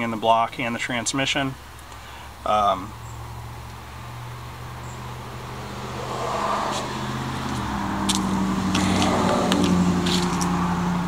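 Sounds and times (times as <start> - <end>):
car engine running: 2.9 - 11.0.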